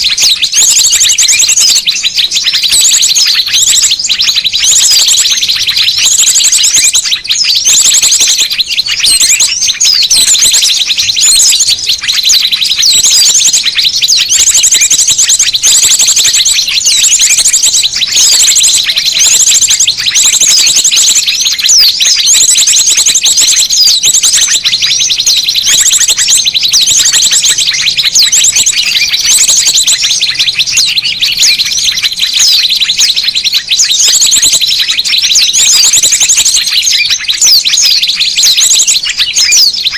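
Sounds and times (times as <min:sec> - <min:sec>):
small birds chirping and trilling: 0:00.0 - 0:39.9.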